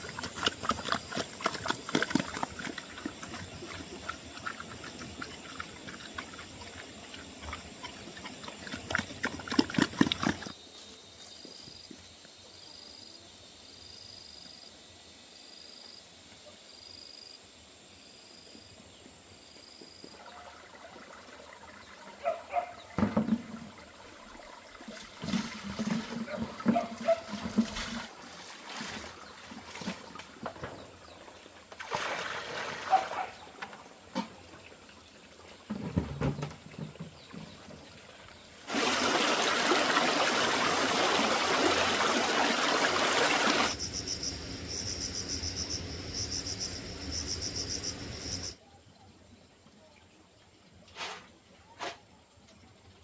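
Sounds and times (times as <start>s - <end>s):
crickets chirping: 0.0s - 34.9s, 43.4s - 48.6s
water pouring: 20.2s - 22.4s, 23.0s - 29.8s, 31.8s - 33.0s, 38.7s - 43.8s.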